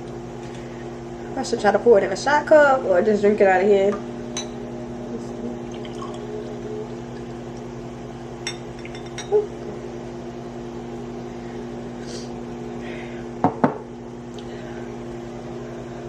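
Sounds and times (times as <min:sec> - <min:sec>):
steady low hum: 0:00.0 - 0:16.0
glassware clinking: 0:04.4 - 0:04.6, 0:08.4 - 0:09.5.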